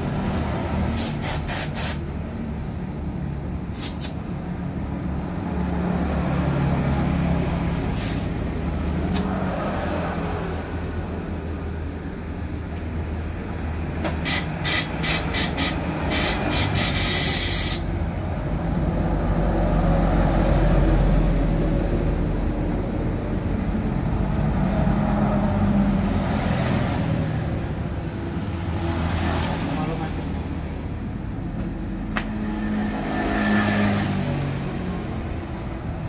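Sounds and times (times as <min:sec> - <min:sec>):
road traffic rumble: 0:00.0 - 0:36.0.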